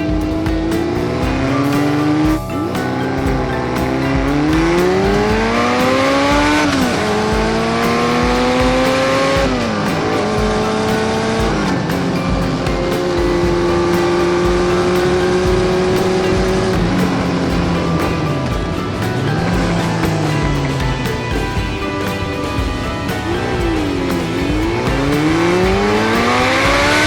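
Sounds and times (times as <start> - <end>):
background music with beat: 0.0 - 27.0
motorcycle engine accelerating: 0.0 - 27.0.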